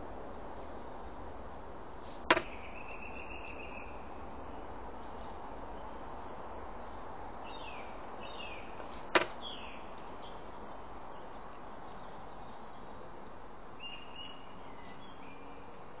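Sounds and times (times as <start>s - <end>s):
steady background hiss: 0.0s - 16.0s
faint bird chirps: 2.4s - 4.2s, 9.4s - 16.0s.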